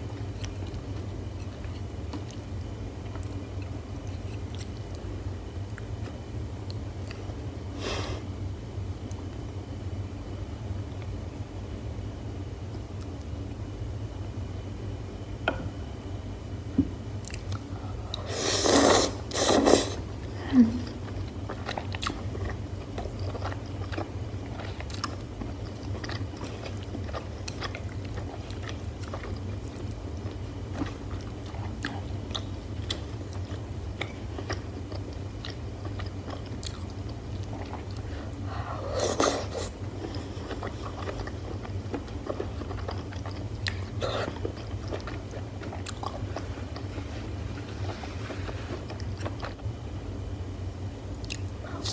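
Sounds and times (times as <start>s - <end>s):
steady low hum: 0.0s - 51.9s
close chewing: 20.8s - 49.6s.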